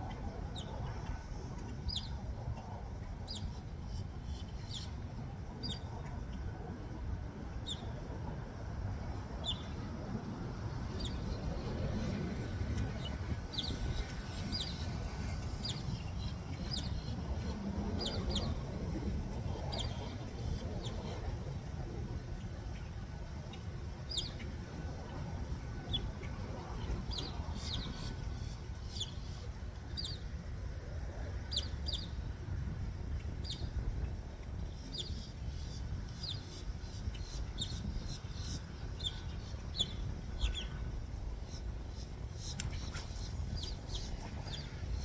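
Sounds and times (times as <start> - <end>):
steady low rumble: 0.0 - 45.0
small birds chirping: 11.0 - 18.8, 36.2 - 45.0.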